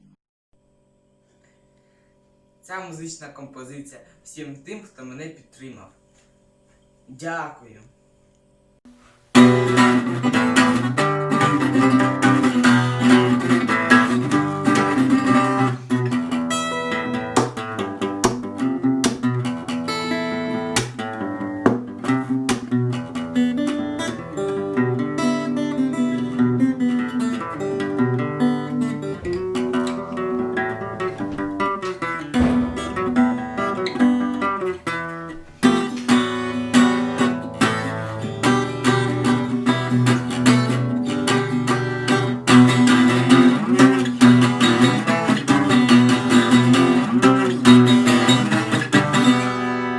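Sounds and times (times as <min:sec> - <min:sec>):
acoustic guitar: 0:08.9 - 0:49.9.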